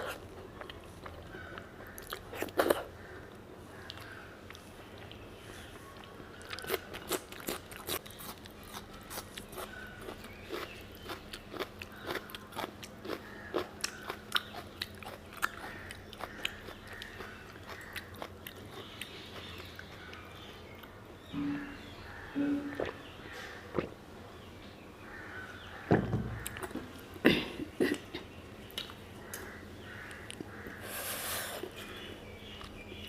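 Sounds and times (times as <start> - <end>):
chewing and crunching food: 0.0 - 21.0.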